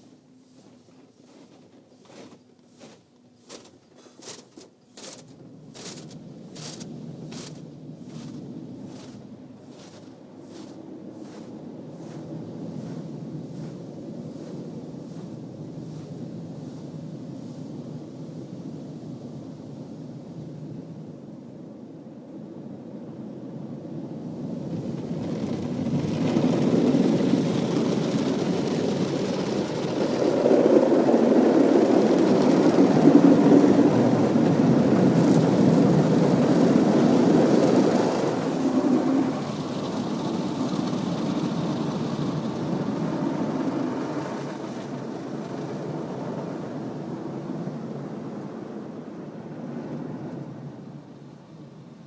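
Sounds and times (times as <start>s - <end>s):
automatic car wash rushing: 25.0s - 48.1s.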